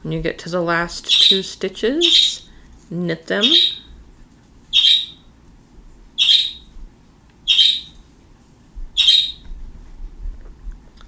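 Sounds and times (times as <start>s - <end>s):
bird giving sharp calls: 3.4s - 3.9s, 4.7s - 5.2s, 6.2s - 6.7s, 7.5s - 8.0s, 9.0s - 9.4s.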